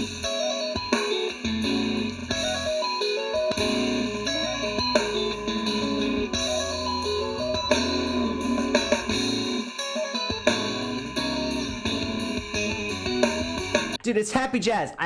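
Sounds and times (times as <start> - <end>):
bass guitar: 0.0 - 0.3, 1.4 - 2.8, 3.4 - 9.6, 10.5 - 14.0
drums: 0.0 - 14.4.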